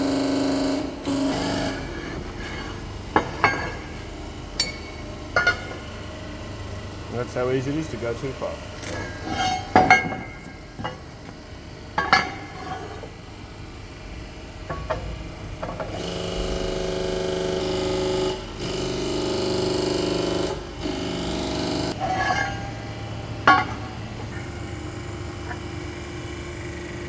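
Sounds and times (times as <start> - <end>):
power tool running: 0.0 - 6.2, 14.8 - 22.0
metal clanks on steel plate: 12.0 - 13.0.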